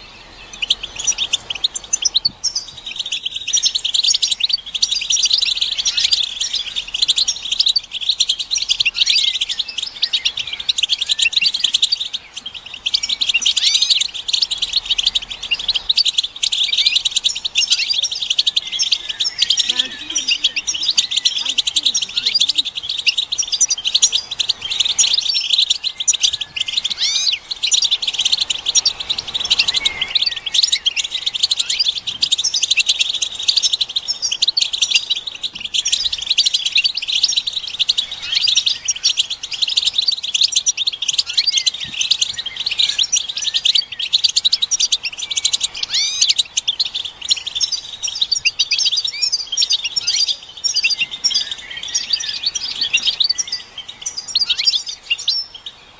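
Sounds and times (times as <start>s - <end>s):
finches twittering: 0.0s - 55.9s.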